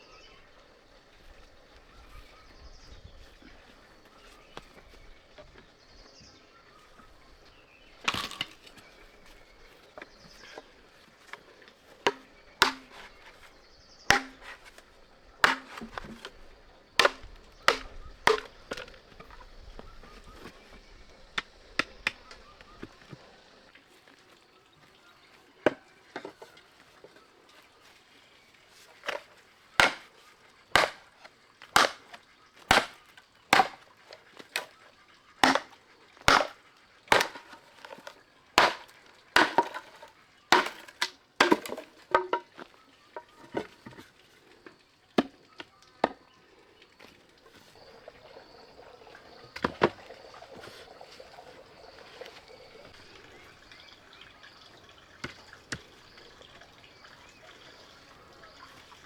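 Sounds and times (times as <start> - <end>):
wood chopping with a blade: 7.8 - 23.2, 29.0 - 30.2, 30.8 - 34.8, 35.4 - 44.0, 45.2 - 45.4, 49.5 - 50.9, 55.2 - 55.9.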